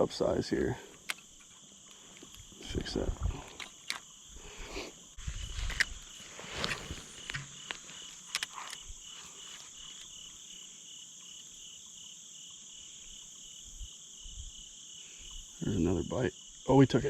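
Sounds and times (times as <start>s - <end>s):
crickets and insects chirping: 0.0s - 17.0s
handling clicks and rustles: 0.9s - 4.1s, 5.2s - 10.2s.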